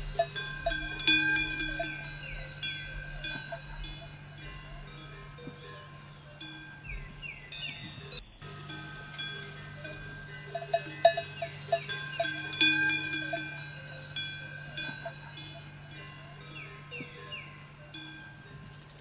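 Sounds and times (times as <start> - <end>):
bells ringing: 0.0 - 19.0
sharp bell clanks: 0.0 - 19.0
steady low hum: 0.0 - 19.0.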